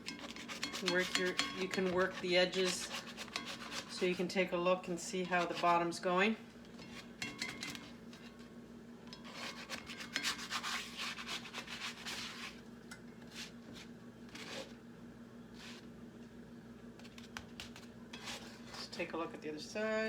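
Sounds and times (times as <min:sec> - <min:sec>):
spatula scraping a frying pan: 0:00.0 - 0:04.3, 0:05.0 - 0:06.0, 0:06.8 - 0:08.4, 0:09.1 - 0:12.6, 0:13.3 - 0:14.8, 0:18.1 - 0:19.1.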